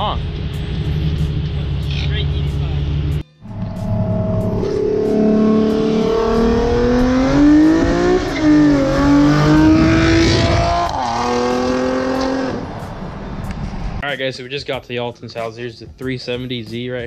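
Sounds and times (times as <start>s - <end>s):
car engine accelerating hard: 0.0s - 13.4s.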